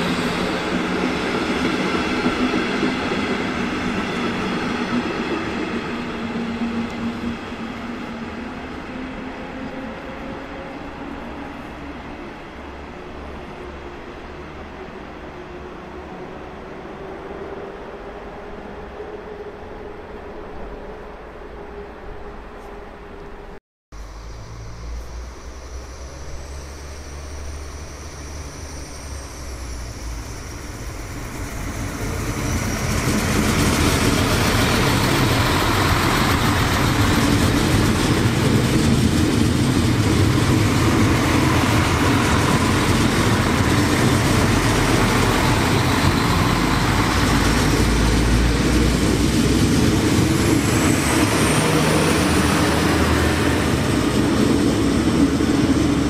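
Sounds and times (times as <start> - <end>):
train passing close by: 0.0 - 56.0.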